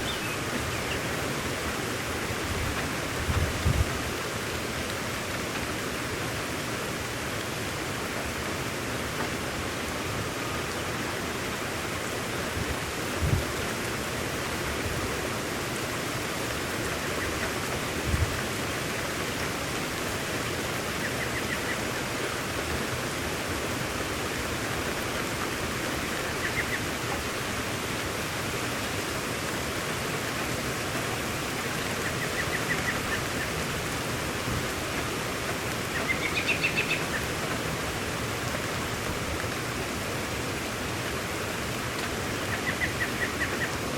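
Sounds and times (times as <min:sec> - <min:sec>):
bird chirping trills: 0:00.0 - 0:01.0, 0:36.0 - 0:37.2
heavy rain falling: 0:00.0 - 0:43.9.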